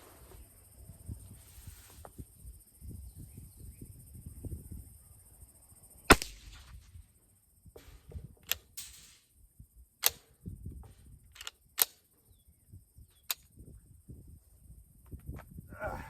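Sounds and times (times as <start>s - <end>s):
rifle shots cracking: 6.1s - 6.9s.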